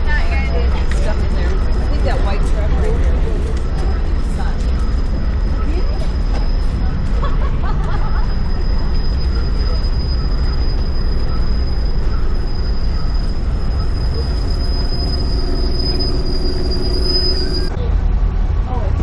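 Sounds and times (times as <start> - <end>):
high-pitched squeal: 0.0 - 17.9
train rumble: 0.0 - 19.0.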